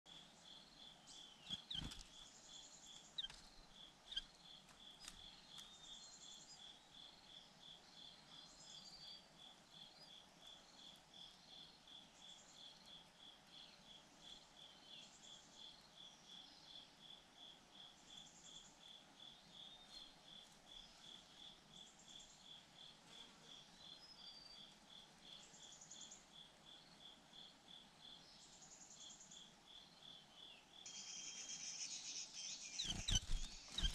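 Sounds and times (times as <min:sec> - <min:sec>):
insects chirping: 0:00.1 - 0:33.9
high insect trill: 0:30.8 - 0:33.9.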